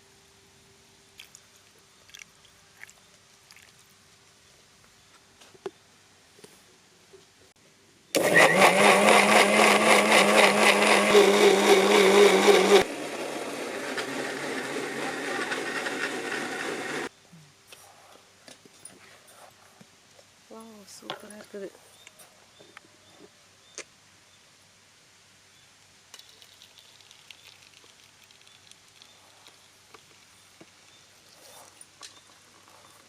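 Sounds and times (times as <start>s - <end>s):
electric blender whirring: 8.2s - 17.1s.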